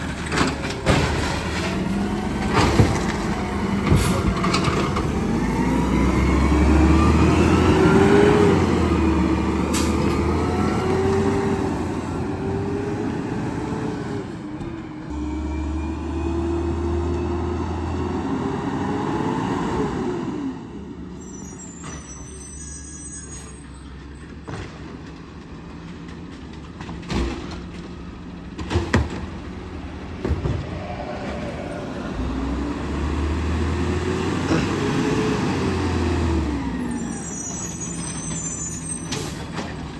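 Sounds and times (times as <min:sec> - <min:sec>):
garbage truck engine revving: 0:00.0 - 0:21.0, 0:28.8 - 0:39.9
high squeal: 0:21.1 - 0:24.0, 0:36.6 - 0:39.6.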